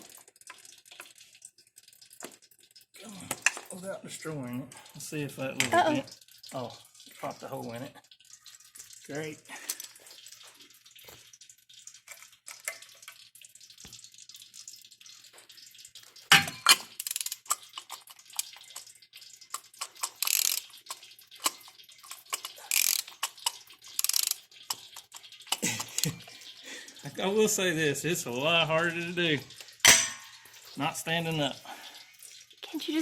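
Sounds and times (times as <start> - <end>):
oil dripping and spattering: 0.0 - 33.0
hissing spatters: 15.0 - 33.0.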